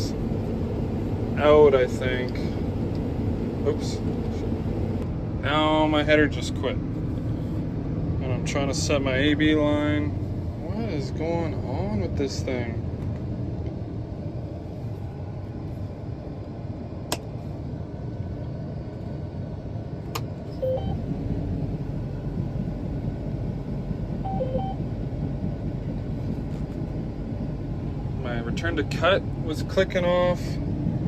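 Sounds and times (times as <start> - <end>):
combine engine rumble: 0.0 - 31.0
short electronic beeps: 24.3 - 24.8.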